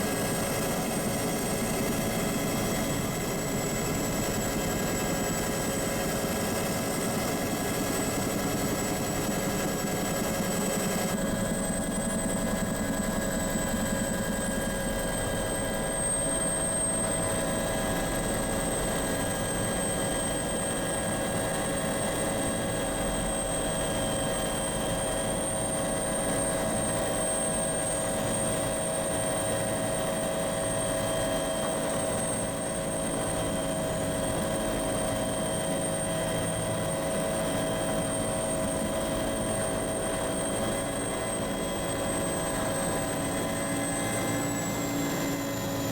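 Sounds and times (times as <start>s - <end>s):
aircraft engine drone in cabin: 0.0s - 45.9s.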